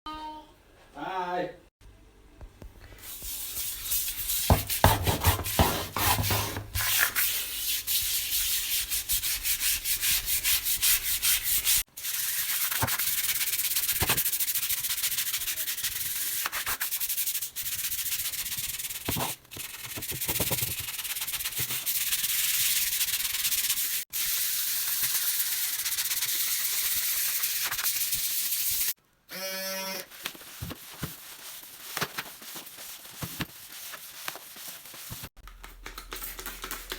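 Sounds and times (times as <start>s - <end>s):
stiff brush scrubbing a floor: 3.0s - 28.9s.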